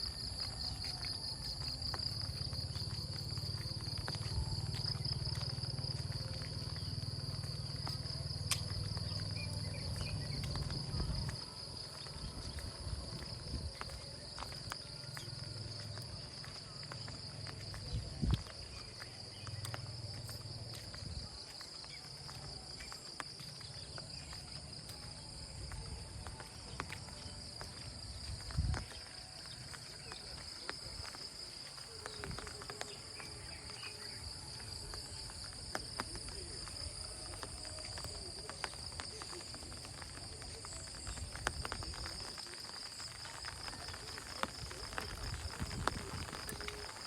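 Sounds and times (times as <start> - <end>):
insects trilling: 0.0 - 47.0.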